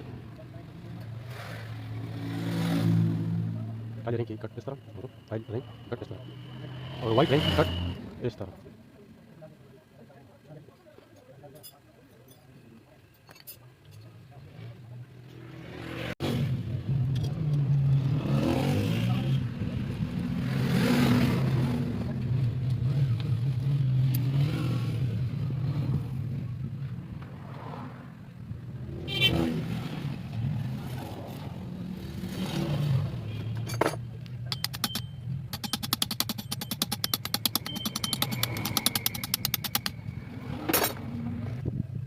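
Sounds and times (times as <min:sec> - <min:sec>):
rapid clicking: 0:34.5 - 0:40.0.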